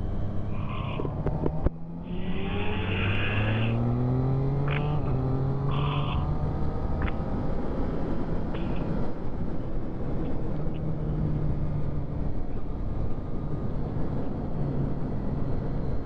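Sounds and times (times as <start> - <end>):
motorcycle engine accelerating: 0.0 - 8.8.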